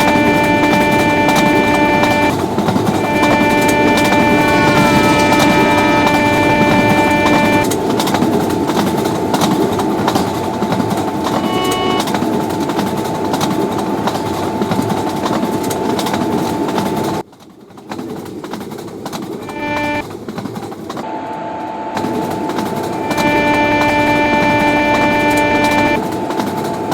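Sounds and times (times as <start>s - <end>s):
train horn: 0.0s - 7.9s, 10.1s - 13.4s, 19.4s - 20.0s, 21.0s - 26.9s
train cars rushing and rattling: 0.0s - 26.9s.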